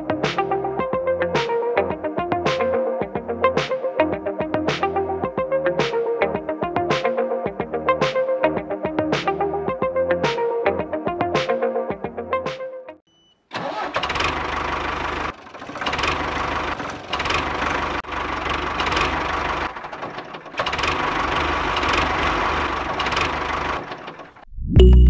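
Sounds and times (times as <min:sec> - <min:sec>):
small engine chugging: 0:13.6 - 0:24.4.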